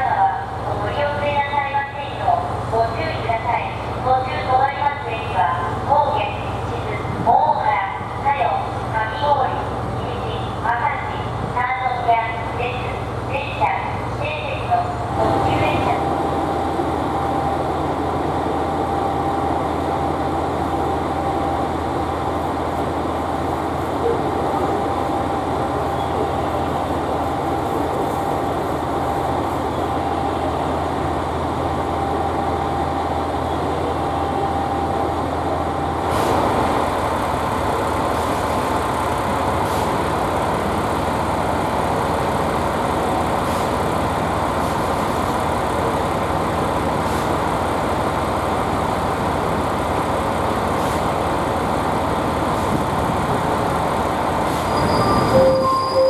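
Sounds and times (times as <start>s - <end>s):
diesel engines idling: 12.2s - 56.0s.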